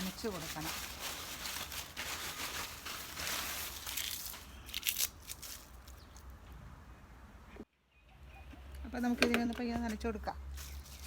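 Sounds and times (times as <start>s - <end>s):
dry leaves crunching: 0.0s - 6.2s, 9.8s - 11.0s.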